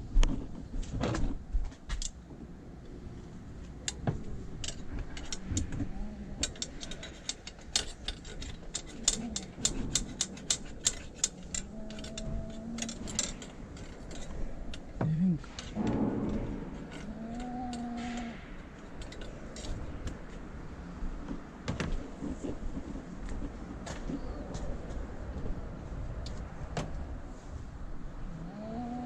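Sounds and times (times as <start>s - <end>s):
tools clicking on engine parts: 3.7s - 20.6s
low voice-like sounds: 5.4s - 6.6s, 11.7s - 13.2s, 15.0s - 18.6s, 28.3s - 29.0s.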